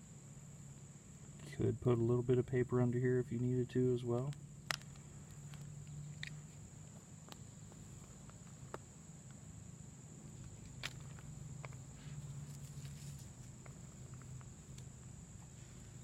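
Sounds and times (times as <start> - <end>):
kindling snapping and crackling: 4.1 - 6.4.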